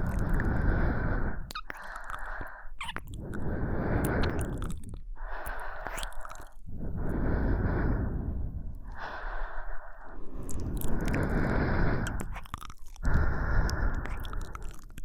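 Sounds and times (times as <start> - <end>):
mouth clicks: 0.0 - 8.0, 8.7 - 15.0
woman breathing closely: 0.0 - 15.0.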